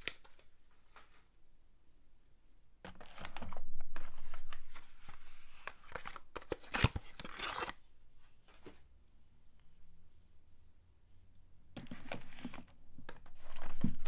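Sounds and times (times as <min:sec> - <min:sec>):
wrapper crinkling and tearing: 0:05.6 - 0:07.8.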